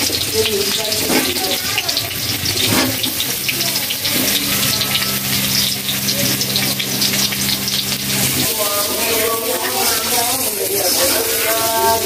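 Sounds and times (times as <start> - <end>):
potatoes sizzling in hot oil: 0.0 - 12.0
steady low hum: 2.3 - 10.2.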